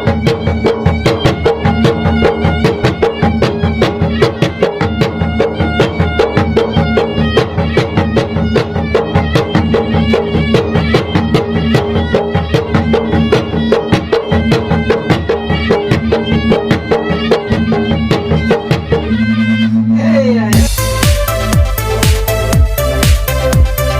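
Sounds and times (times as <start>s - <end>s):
ceremonial drums beaten fast: 0.0s - 19.4s, 20.4s - 23.9s
reed wind instrument long notes: 15.6s - 23.9s.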